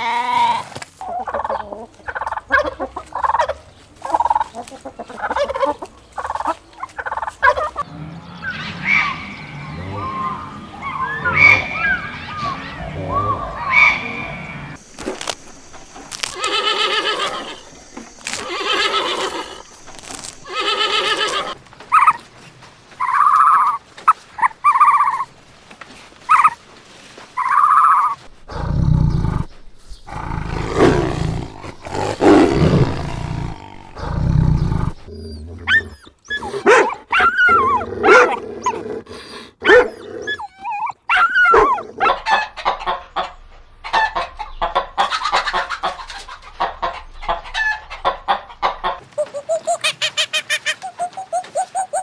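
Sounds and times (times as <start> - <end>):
deep low animal calls: 4.1 - 21.6, 27.4 - 52.0
long drawn-out animal calls: 16.1 - 22.1, 49.0 - 52.0
quick chirping calls: 49.0 - 52.0.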